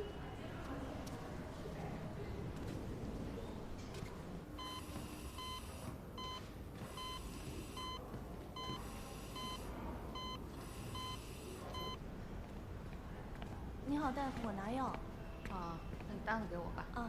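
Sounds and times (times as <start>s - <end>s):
monitor alarm beeping: 4.6s - 8.0s, 8.6s - 12.0s.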